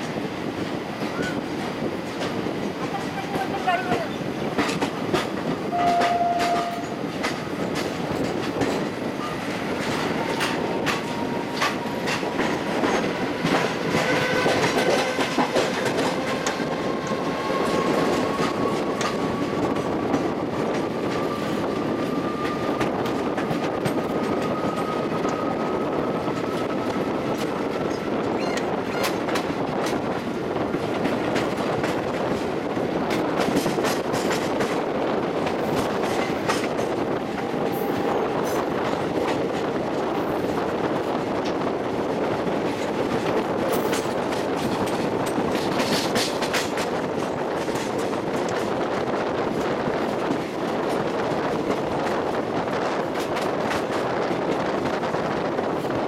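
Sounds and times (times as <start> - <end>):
wheels clacking over rail joints: 0.0 - 40.6, 42.6 - 52.2
train rolling rumble: 0.0 - 56.0
short steady tone: 5.8 - 6.9.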